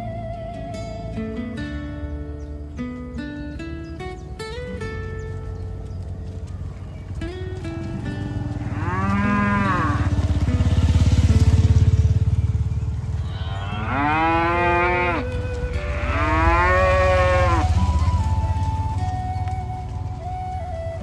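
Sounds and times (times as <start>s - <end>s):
cattle mooing: 8.2s - 10.7s, 13.2s - 18.1s.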